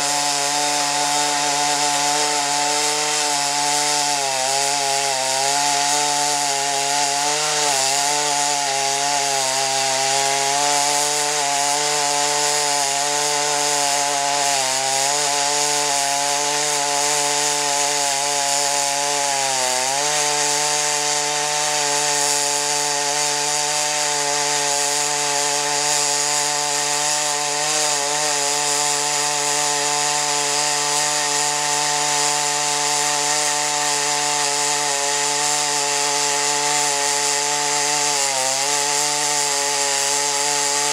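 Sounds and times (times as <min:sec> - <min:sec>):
chainsaw cutting log: 0:00.0 - 0:40.9.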